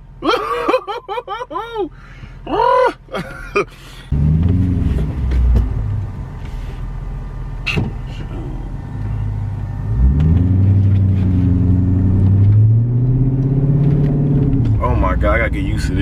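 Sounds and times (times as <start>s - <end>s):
loud car exhaust accelerating: 4.1s - 16.0s.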